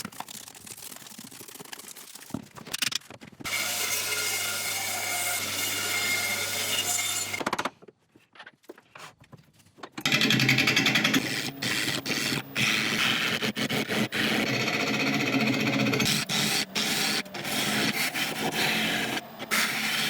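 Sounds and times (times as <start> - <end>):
power tool cutting wood: 3.5 - 7.5, 10.0 - 20.0.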